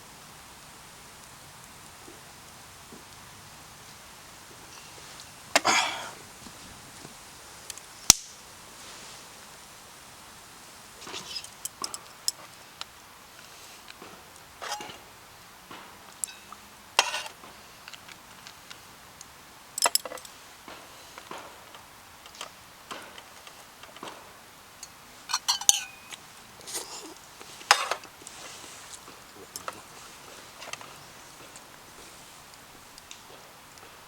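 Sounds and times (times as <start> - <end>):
metal cookware clinking: 14.6 - 15.0, 16.2 - 17.3, 25.3 - 28.1.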